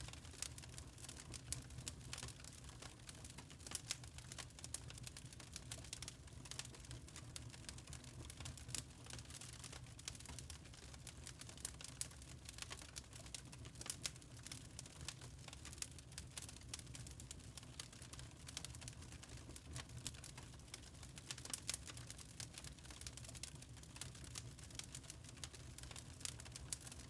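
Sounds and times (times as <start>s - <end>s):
charcoal crackling: 3.6s - 4.0s.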